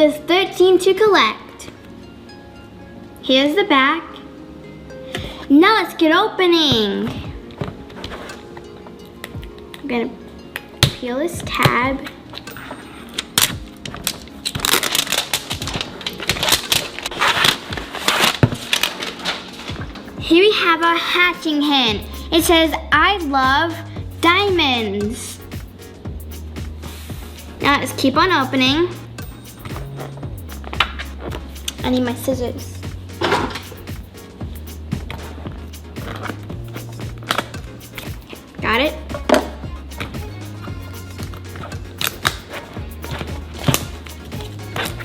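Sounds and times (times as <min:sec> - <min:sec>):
background music with bass line: 0:06.6 - 0:45.0
packaging crinkling and tearing: 0:13.2 - 0:20.2.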